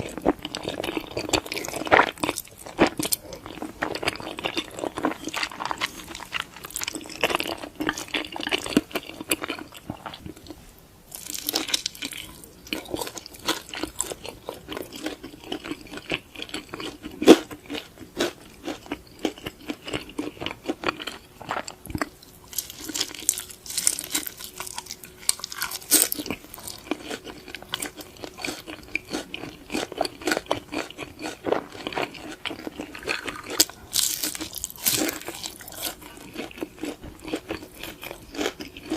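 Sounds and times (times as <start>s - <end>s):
chewing and mouth clicks: 11.2s - 38.9s.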